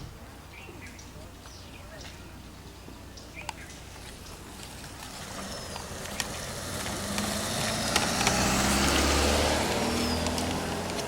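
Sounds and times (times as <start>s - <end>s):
motor vehicle passing by: 4.5s - 11.0s.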